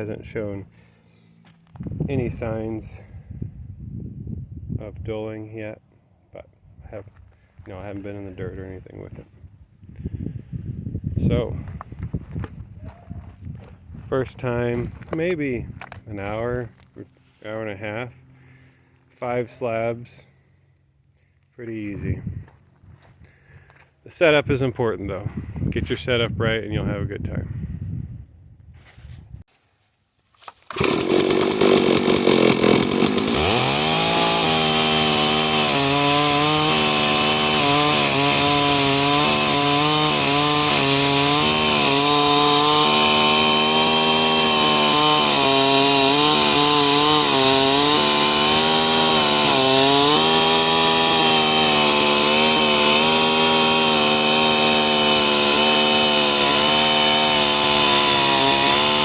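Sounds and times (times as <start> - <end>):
chainsaw cutting under load: 30.5 - 59.0.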